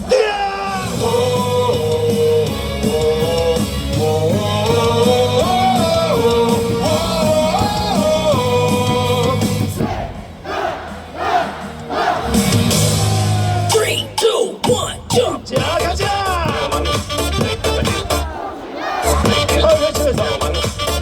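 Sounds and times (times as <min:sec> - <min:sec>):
rock cheer song over loudspeakers: 0:00.0 - 0:10.3, 0:11.6 - 0:13.9.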